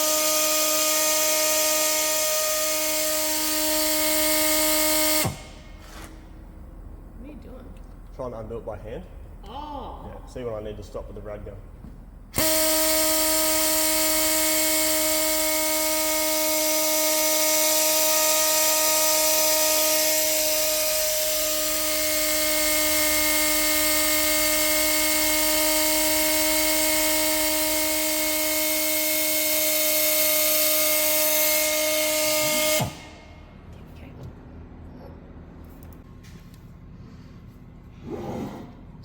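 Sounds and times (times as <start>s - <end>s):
impact wrench whining: 0.0s - 6.4s, 12.3s - 33.5s.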